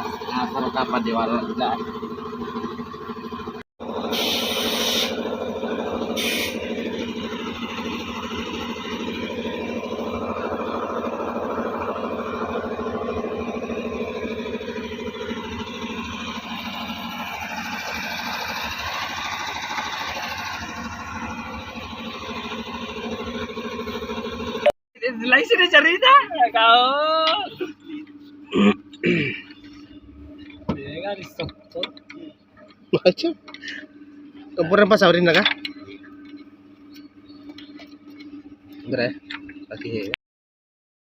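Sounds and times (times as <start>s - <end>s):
excavator diesel engine running: 0.0s - 40.2s
short hisses: 6.2s - 6.6s.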